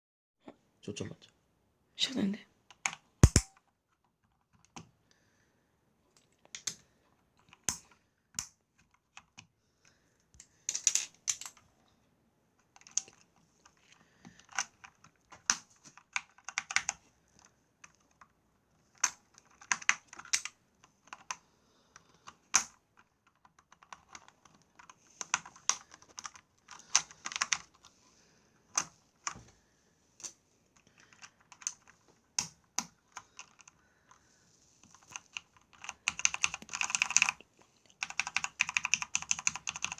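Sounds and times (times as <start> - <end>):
keycaps clicking off keyboard: 2.7 - 4.9, 12.7 - 18.3, 18.9 - 21.4, 22.3 - 27.8, 30.2 - 34.2, 34.9 - 39.9.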